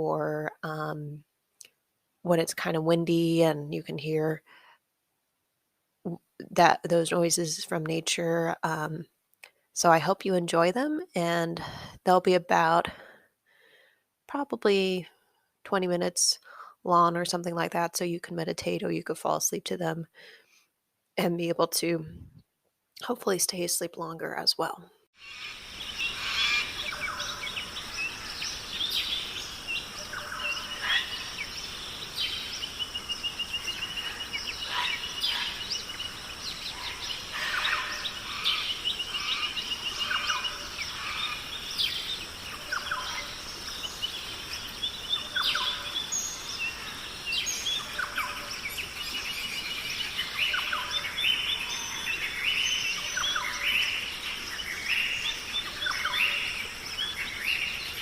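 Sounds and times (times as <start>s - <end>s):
songbirds chirping and trilling: 25.2s - 58.0s
steady background hiss: 25.2s - 58.0s.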